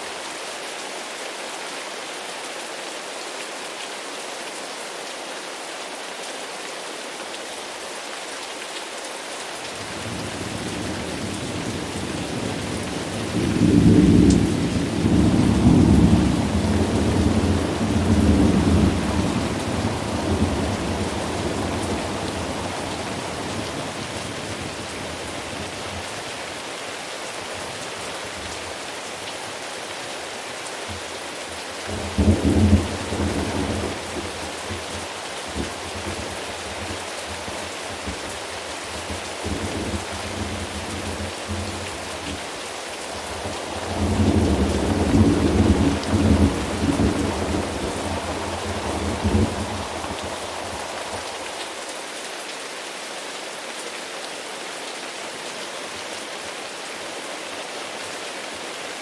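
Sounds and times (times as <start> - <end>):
steady rain falling: 0.0 - 59.0
thunder rumbling: 10.1 - 25.0, 31.9 - 37.0, 43.1 - 51.4.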